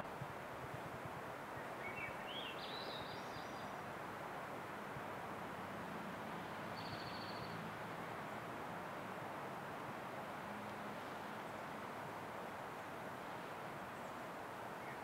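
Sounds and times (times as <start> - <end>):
outdoor background hiss: 0.0 - 15.0
small bird singing: 1.6 - 3.8, 6.8 - 7.6.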